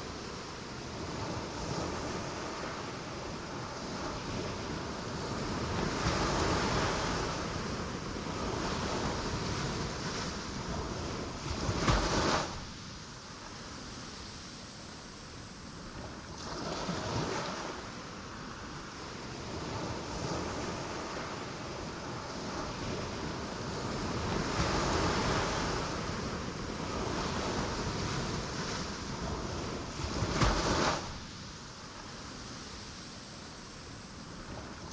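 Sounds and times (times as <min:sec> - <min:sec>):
ocean surf roar: 0:00.0 - 0:34.9
waves crashing on rocks: 0:03.4 - 0:12.9, 0:20.0 - 0:34.5.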